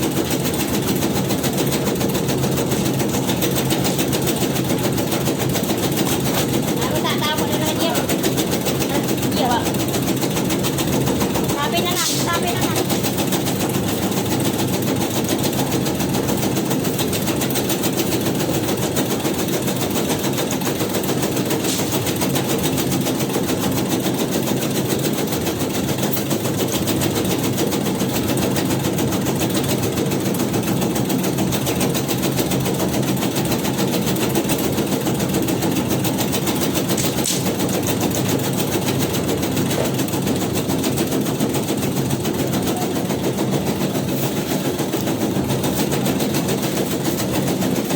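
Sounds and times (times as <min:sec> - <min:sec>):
fast chatter of repeated strokes: 0:06.6 - 0:13.7, 0:40.0 - 0:47.9.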